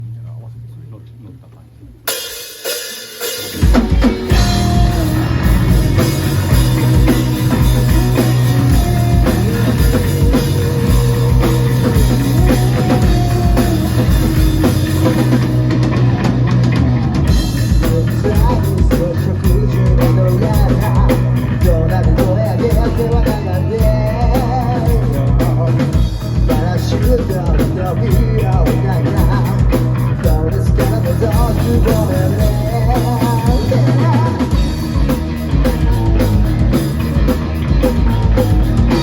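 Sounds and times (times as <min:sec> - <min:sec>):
rock band playing: 0:02.1 - 0:39.0.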